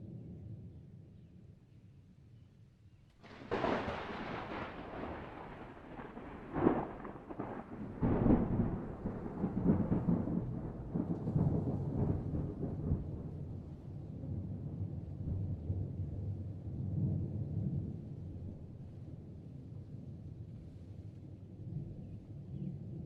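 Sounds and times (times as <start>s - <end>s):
thunder cracks: 3.2s - 13.6s
thunder rumbling: 3.2s - 18.8s.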